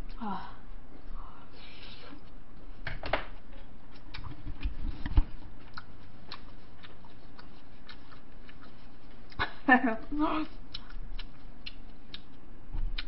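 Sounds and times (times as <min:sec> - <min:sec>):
person chewing food: 0:03.4 - 0:13.0.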